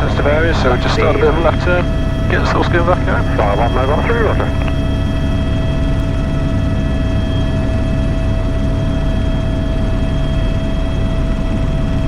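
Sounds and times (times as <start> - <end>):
steady whining tones: 0.0 - 5.0
helicopter rotor and turbine drone: 0.0 - 12.0.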